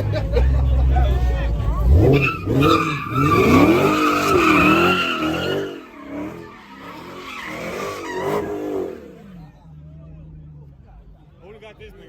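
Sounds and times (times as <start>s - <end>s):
car engine revving: 0.0s - 9.6s
tyres squealing: 1.8s - 9.1s.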